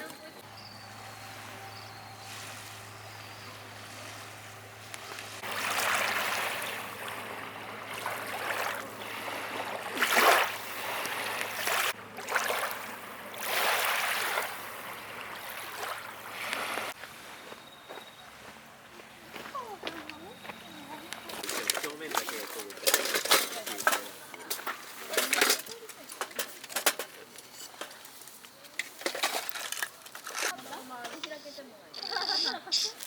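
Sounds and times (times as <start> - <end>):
lake waves washing onto shore: 0.9 - 17.6, 20.8 - 26.0.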